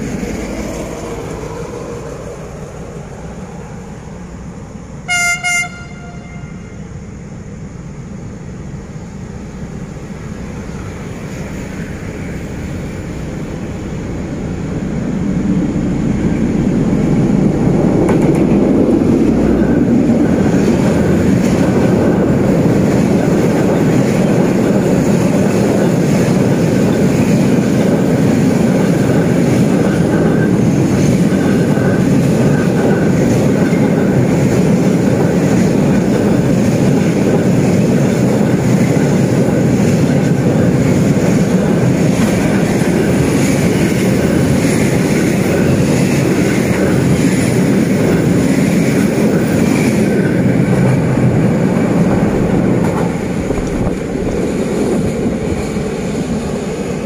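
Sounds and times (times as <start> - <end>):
train rumbling over bridge: 0.0 - 57.0
locomotive horn toots: 5.0 - 6.9.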